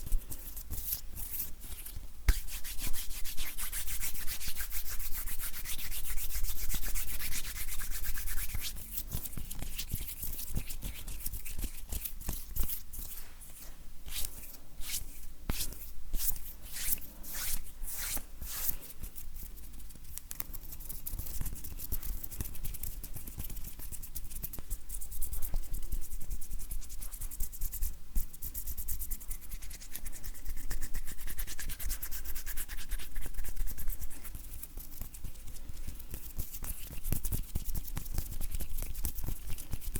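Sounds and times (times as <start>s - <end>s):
hands rubbing together: 0.0s - 18.8s.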